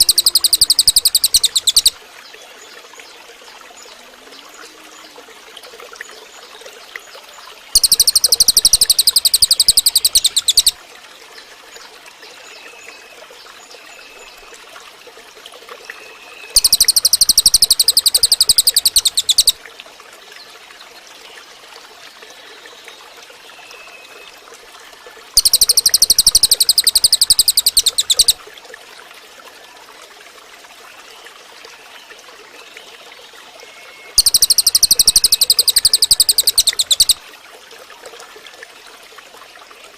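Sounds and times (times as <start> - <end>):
bird rapid high-pitched trill: 0.0 - 2.0, 7.8 - 10.8, 16.6 - 19.6, 25.4 - 28.4, 34.2 - 37.2
soft short bird chirps: 0.0 - 2.0, 7.8 - 10.8, 16.5 - 19.6, 25.4 - 28.4, 34.2 - 37.2.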